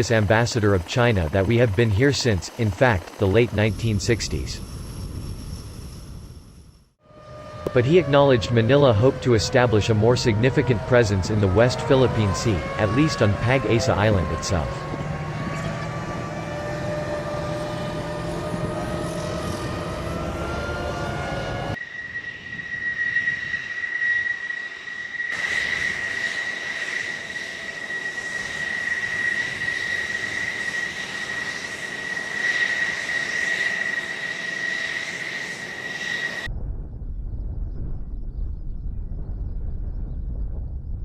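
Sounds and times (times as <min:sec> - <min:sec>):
high engine whine: 0:00.0 - 0:36.5
aircraft engine drone: 0:00.0 - 0:36.6
low rumble: 0:36.4 - 0:41.0.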